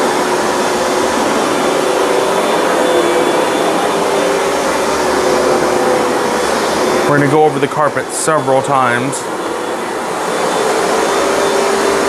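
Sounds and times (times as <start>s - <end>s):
carpet cleaner motor whining: 0.0s - 12.0s.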